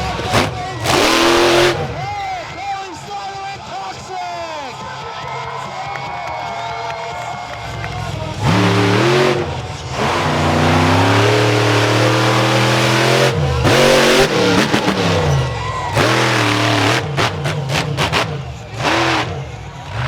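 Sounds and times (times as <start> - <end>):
monster truck engine revving: 0.0 - 2.6, 7.2 - 20.0.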